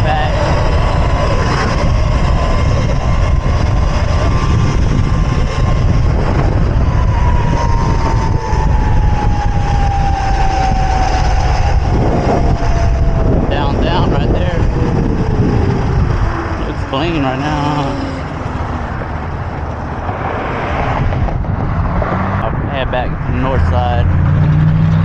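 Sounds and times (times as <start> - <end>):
electric motor whine: 0.0 - 19.8
wind buffeting microphone: 0.0 - 25.0.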